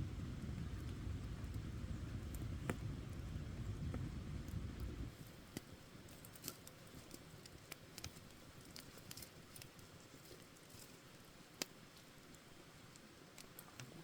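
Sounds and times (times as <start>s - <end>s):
low rumble: 0.0s - 5.1s
campfire crackling: 0.0s - 14.0s.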